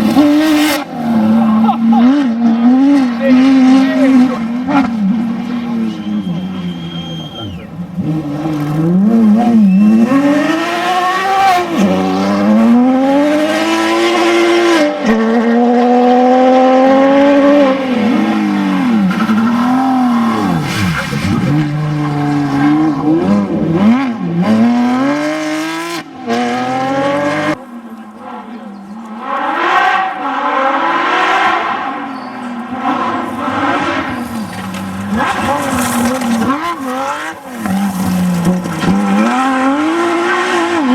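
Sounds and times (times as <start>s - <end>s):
rally car engine revving: 0.0s - 40.9s.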